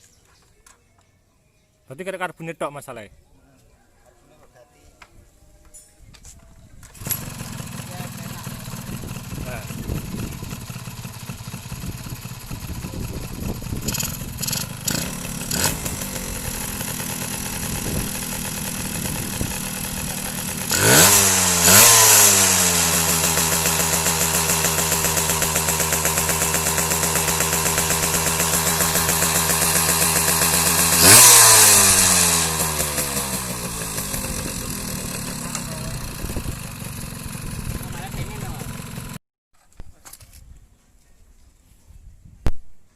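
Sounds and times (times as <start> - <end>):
two-stroke engine idling and revving: 6.9 - 39.2.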